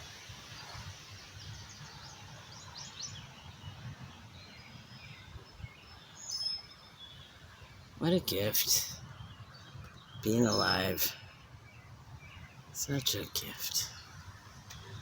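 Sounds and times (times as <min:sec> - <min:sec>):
wind buffeting microphone: 0:00.0 - 0:12.9
small birds chirping: 0:00.0 - 0:15.0.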